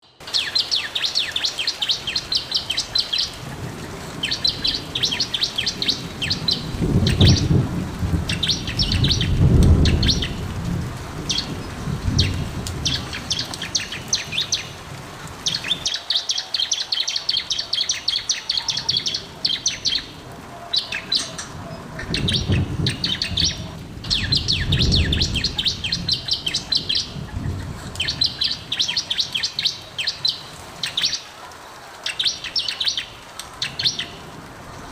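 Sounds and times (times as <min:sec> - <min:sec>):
bird singing high chirps: 0:00.0 - 0:03.4, 0:22.0 - 0:27.1.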